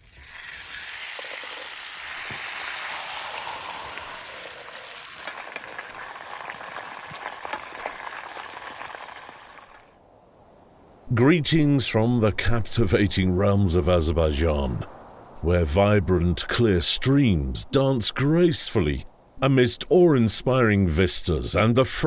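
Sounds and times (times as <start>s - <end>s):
meat sizzling: 0.0s - 9.8s.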